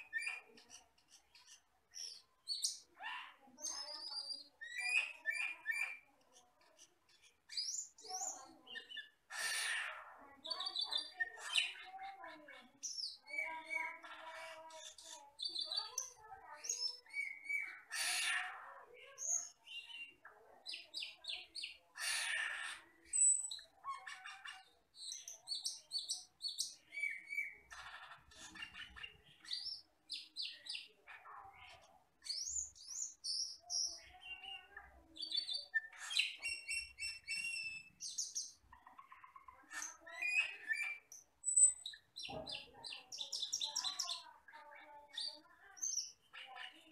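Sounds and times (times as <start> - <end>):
starling singing whistles and chirps: 3.7 - 6.1, 12.8 - 18.5, 24.6 - 31.0, 32.2 - 44.3
harsh rasping bird notes: 8.7 - 12.2, 16.8 - 20.1, 21.6 - 25.3.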